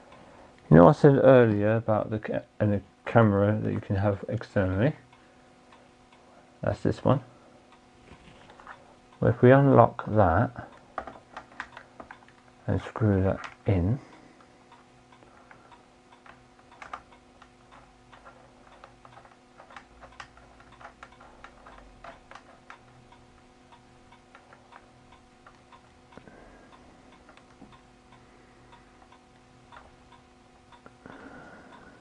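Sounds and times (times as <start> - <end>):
faint steady hum: 0.0 - 32.0
camera hardware clicks and ticks: 10.7 - 12.5, 13.4 - 13.6, 14.7 - 23.2.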